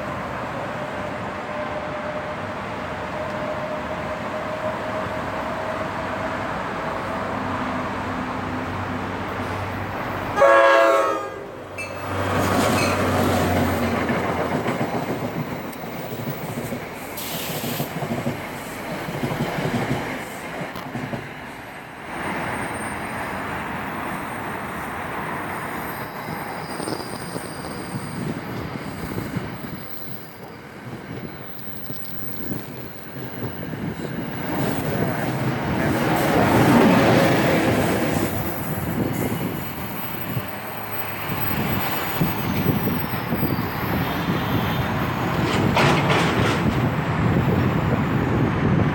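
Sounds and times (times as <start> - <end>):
train rumbling past: 0.0 - 48.9
train horn blast: 10.3 - 12.0.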